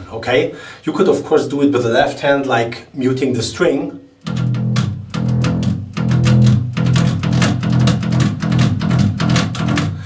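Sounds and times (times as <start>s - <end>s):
bass guitar metal riff: 4.2s - 10.0s.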